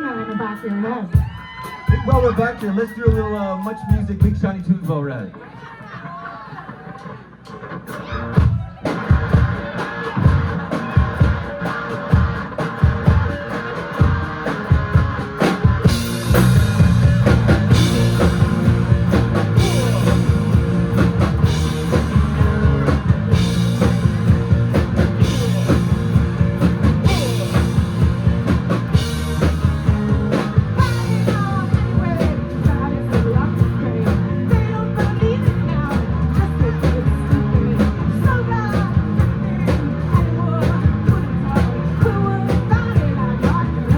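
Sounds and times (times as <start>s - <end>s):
rock band playing: 0.0s - 5.3s, 6.6s - 43.9s
drum hits: 8.5s - 31.5s.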